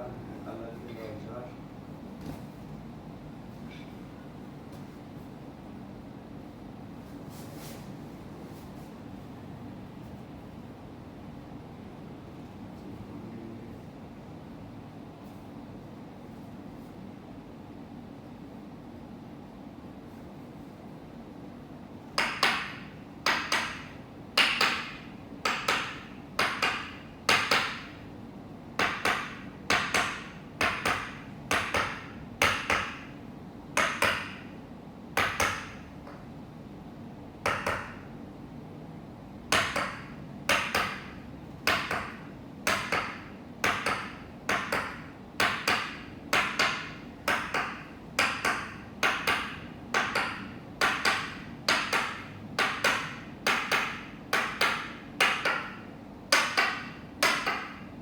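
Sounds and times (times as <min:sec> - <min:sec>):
wooden mallet tapping wooden peg: 0:22.2 - 0:27.9, 0:28.8 - 0:33.1, 0:33.8 - 0:34.5, 0:37.4 - 0:38.0, 0:39.5 - 0:57.8.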